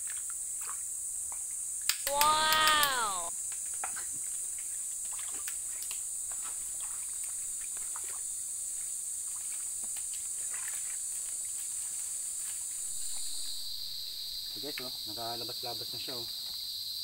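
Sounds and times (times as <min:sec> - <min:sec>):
insects buzzing: 0:00.1 - 0:17.0.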